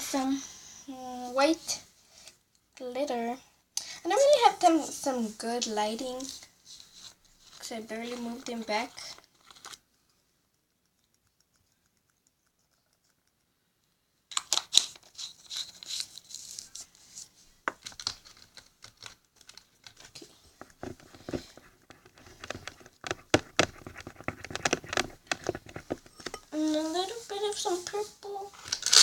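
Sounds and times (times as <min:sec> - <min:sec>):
plastic containers rustling and crinkling: 0:04.2 - 0:09.8, 0:14.3 - 0:29.0.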